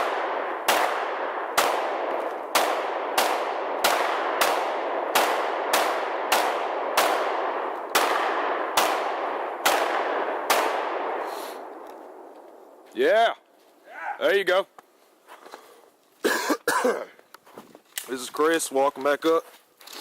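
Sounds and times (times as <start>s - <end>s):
echoing gunshots: 0.0s - 12.8s.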